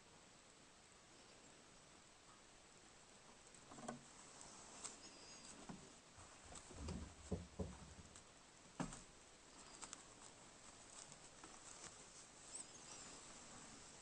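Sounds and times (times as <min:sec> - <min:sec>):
faint high bird call: 0:05.0 - 0:05.6
birds knocking on wooden feeder: 0:06.8 - 0:08.1.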